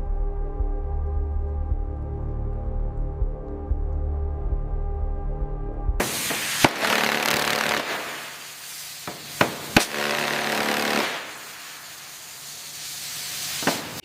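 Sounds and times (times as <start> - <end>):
power tool whirring and grinding: 6.0 - 14.0.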